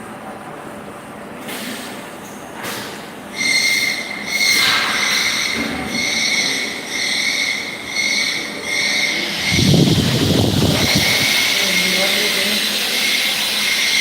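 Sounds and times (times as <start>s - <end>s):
milling cutter squealing whine: 3.3s - 14.0s
loud rough burst of noise: 4.3s - 14.0s.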